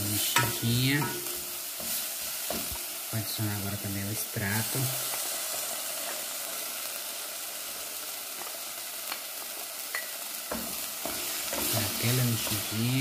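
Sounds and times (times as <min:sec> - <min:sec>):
vegetables sizzling in hot oil: 0:00.0 - 0:13.0
wooden spatula tapping: 0:00.4 - 0:02.8, 0:09.9 - 0:12.7.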